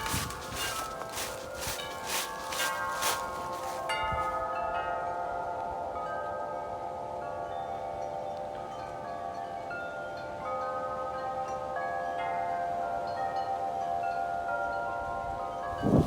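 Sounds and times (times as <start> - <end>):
gusty wind: 0.0 - 1.7, 15.8 - 16.0
wind chimes ringing: 0.0 - 16.0.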